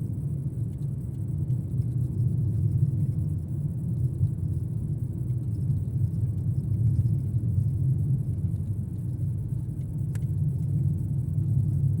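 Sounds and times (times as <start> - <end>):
car engine rumble and road noise: 0.0 - 12.0.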